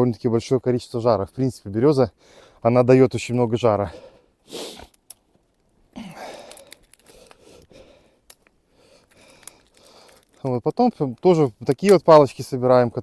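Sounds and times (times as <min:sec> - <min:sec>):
twigs and bark rustling: 0:04.8 - 0:13.0
twigs snapping: 0:04.9 - 0:12.2.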